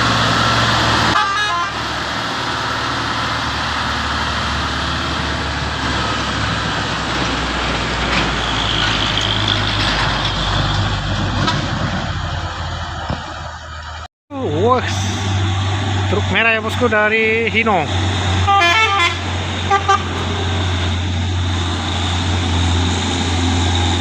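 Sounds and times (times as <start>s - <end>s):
road noise: 0.0s - 24.0s
truck diesel engine running: 0.0s - 24.0s.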